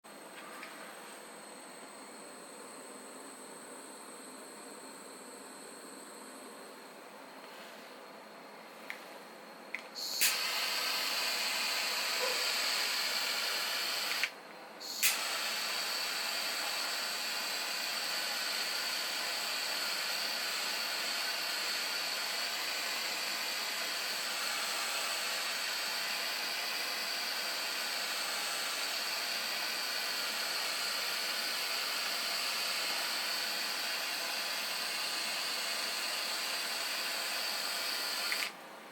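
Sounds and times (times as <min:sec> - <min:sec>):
steam boiler hissing: 0:10.0 - 0:38.5.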